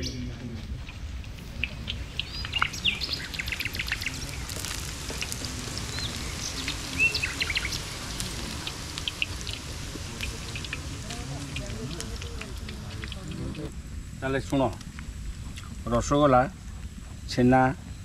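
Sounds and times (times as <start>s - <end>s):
small birds chirping: 0.0s - 13.7s
light clicks and crackles: 0.6s - 13.8s.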